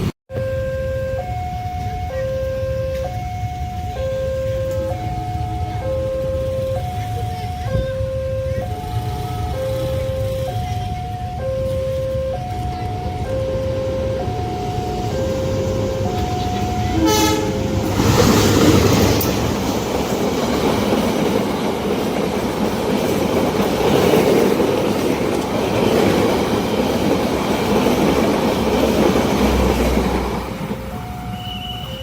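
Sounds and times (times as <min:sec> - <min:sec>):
train passing on rails: 0:00.0 - 0:32.0
level crossing alarm tones: 0:00.3 - 0:21.3, 0:30.5 - 0:32.0.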